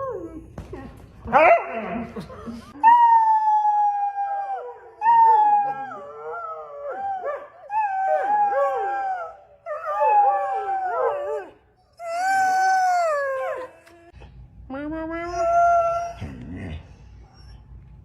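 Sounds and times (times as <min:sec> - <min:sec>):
dog howling: 0:03.2 - 0:13.8.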